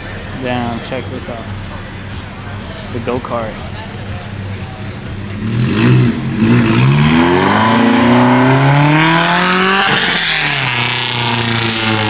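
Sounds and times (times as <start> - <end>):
go-kart engine revving: 5.2 - 12.0.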